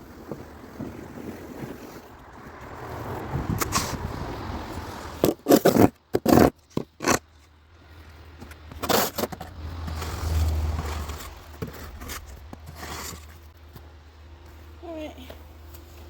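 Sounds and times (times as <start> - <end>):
short scrapes: 8.8 - 13.6
low rumble: 9.5 - 14.3.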